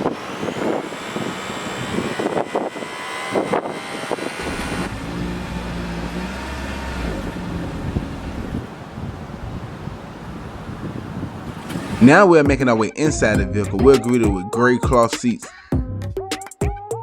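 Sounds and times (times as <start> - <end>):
car engine running with low hum: 0.0 - 12.2.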